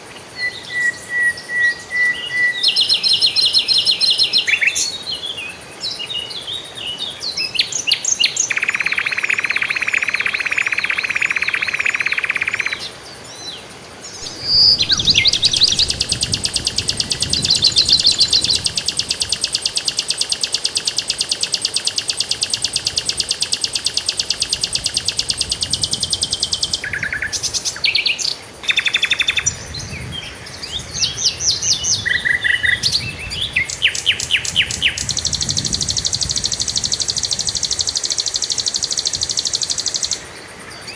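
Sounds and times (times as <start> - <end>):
songbirds trilling: 0.0 - 40.9
bird chirps and whistles: 14.2 - 29.5, 31.0 - 40.2.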